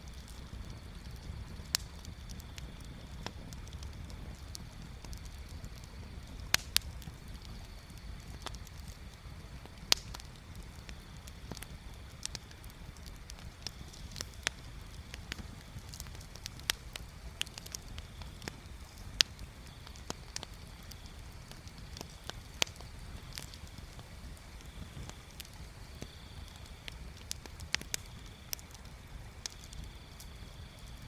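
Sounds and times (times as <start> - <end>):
bonfire crackling and popping: 0.0 - 31.0.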